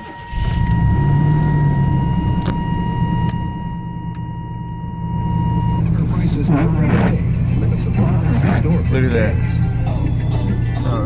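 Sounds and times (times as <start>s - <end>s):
censor bleep tone: 0.0s - 7.5s
loud low rumble: 0.3s - 11.0s.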